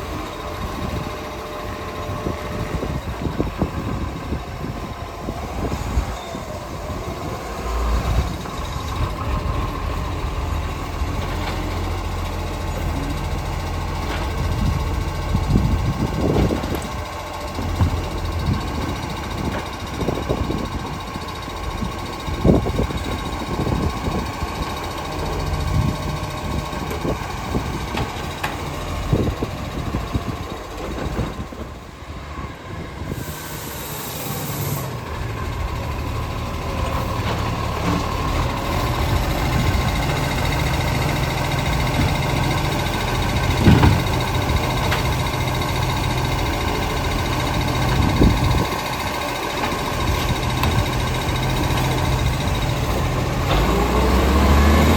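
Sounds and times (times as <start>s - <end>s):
garbage truck engine running: 0.0s - 54.9s
knocks and clunks: 15.6s - 20.0s, 41.6s - 45.2s, 49.6s - 53.8s
brief hiss: 33.1s - 35.0s.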